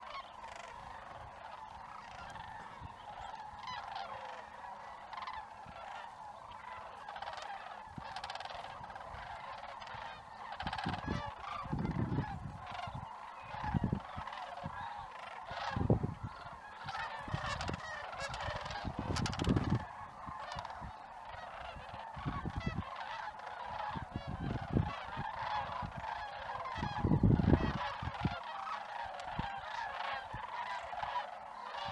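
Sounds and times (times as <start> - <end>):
geese honking: 0.0 - 31.9.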